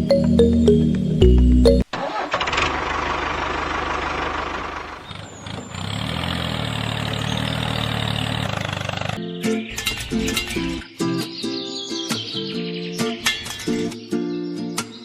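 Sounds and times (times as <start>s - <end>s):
engine running: 1.9s - 10.6s.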